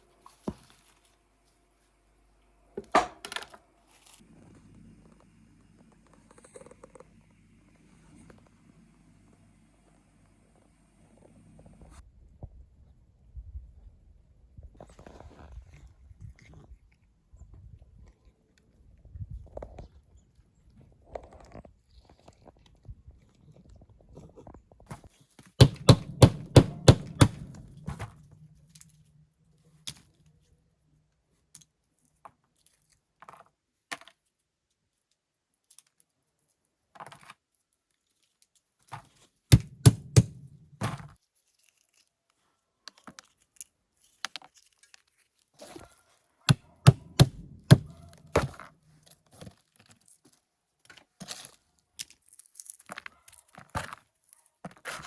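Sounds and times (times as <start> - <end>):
rapid sharp knocks: 25.6 - 27.7, 39.5 - 40.6, 46.8 - 48.5.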